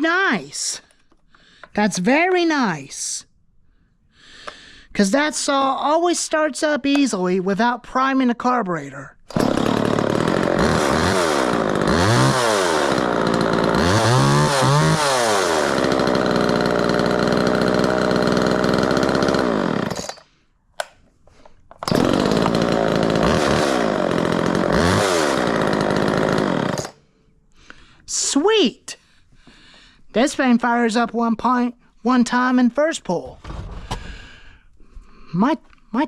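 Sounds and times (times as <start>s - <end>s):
chainsaw revving: 9.3s - 20.2s, 21.8s - 27.0s.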